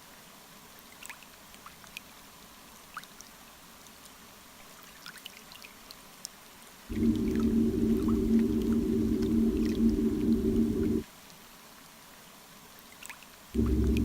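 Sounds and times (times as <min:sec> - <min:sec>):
faint electrical motor hum: 0:06.9 - 0:11.0, 0:13.6 - 0:14.0
water trickling: 0:06.9 - 0:11.0.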